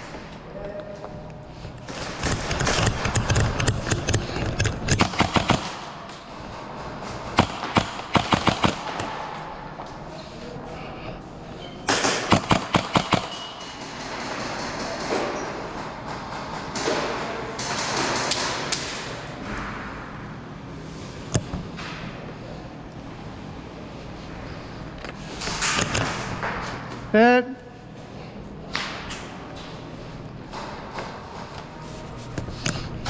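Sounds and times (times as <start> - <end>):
airsoft guns firing: 4.8 - 6.0, 7.3 - 9.3, 11.9 - 15.4.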